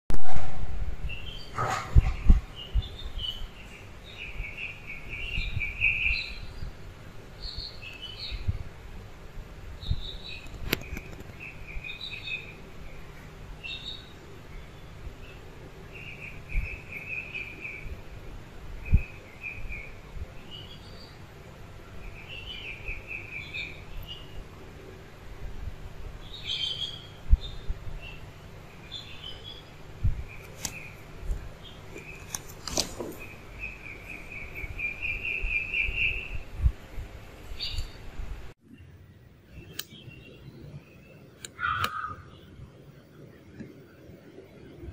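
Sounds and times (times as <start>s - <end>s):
small birds trilling: 1.0s - 38.2s, 39.5s - 43.5s.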